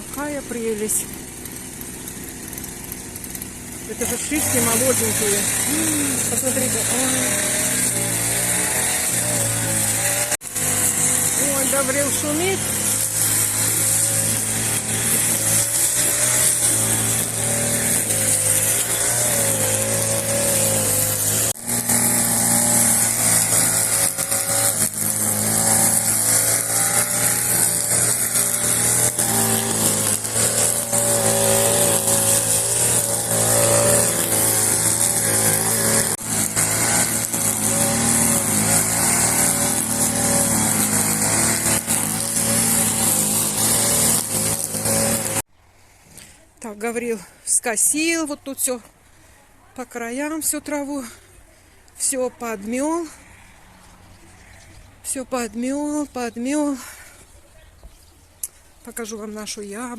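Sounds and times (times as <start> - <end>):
lawn mower engine running: 0.0 - 45.5.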